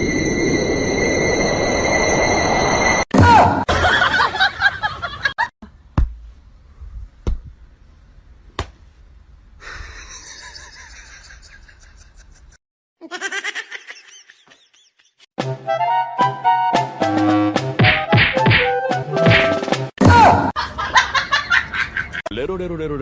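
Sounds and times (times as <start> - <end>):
people laughing: 3.7 - 5.4, 9.9 - 15.2, 20.6 - 22.2
sharp knocks or smacks: 7.2 - 7.5, 8.6 - 8.8.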